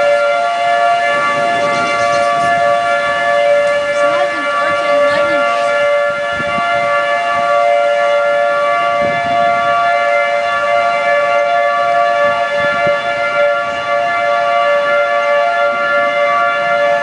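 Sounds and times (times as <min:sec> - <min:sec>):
warning siren steady tone: 0:00.0 - 0:17.0.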